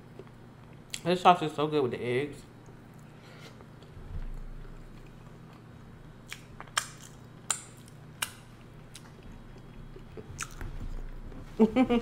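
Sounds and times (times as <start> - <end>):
wet mouth clicks and smacks: 6.3 - 9.1.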